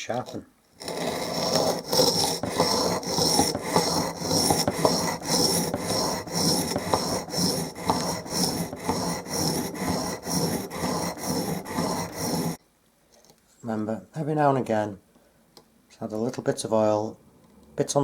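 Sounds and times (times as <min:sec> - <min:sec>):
chisel scraping on sharpening stone: 0:00.2 - 0:12.6.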